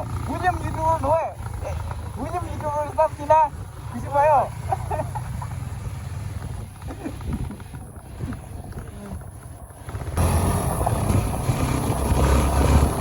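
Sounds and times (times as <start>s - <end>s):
motorcycle engine running: 0.0s - 13.0s
wind rushing over microphone: 5.8s - 13.0s.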